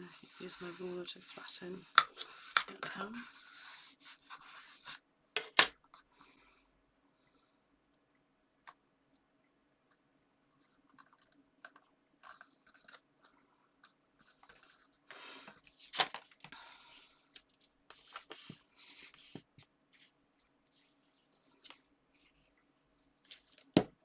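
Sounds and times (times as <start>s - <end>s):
paper rustling and scraping: 14.2s - 15.0s, 17.3s - 20.2s.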